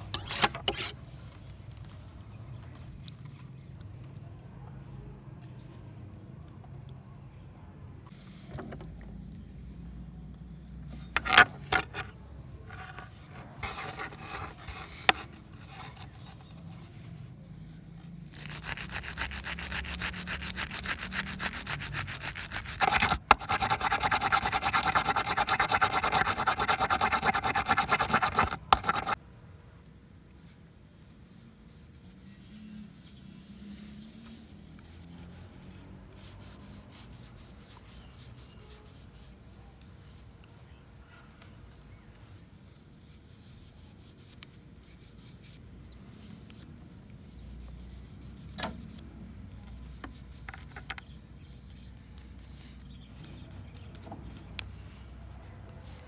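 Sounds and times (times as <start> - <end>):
abrasive rubbing on knife blade: 0.0 - 1.0, 11.2 - 12.1, 12.7 - 16.6, 18.3 - 29.2.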